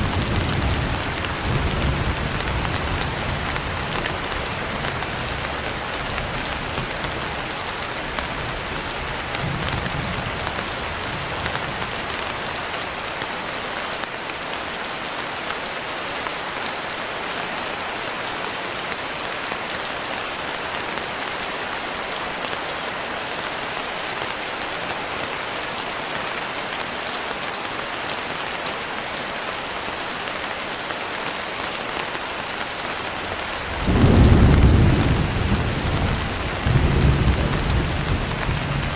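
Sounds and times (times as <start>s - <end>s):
dense rain hissing: 0.0s - 14.1s, 28.2s - 38.9s
distant thunder rumble: 33.6s - 38.9s.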